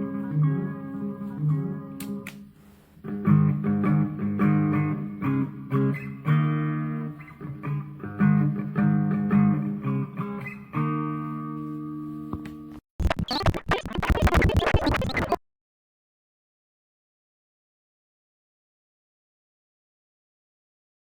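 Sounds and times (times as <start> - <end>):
guitar riff: 0.0 - 2.3, 3.0 - 12.2.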